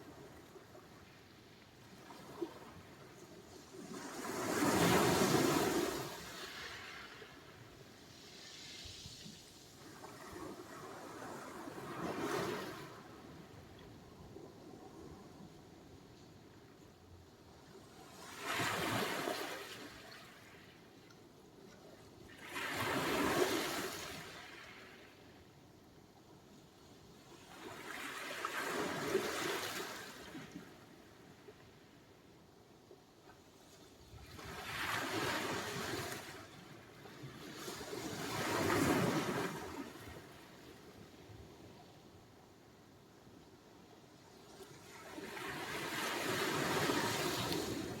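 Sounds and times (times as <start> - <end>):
sea waves breaking on shore: 34.2 - 40.9, 44.5 - 48.0.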